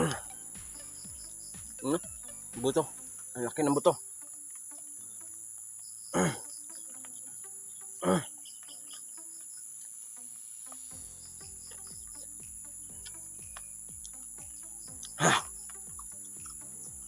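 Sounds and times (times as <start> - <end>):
crickets chirring: 0.0 - 17.0
man exhaling ah: 15.2 - 15.5.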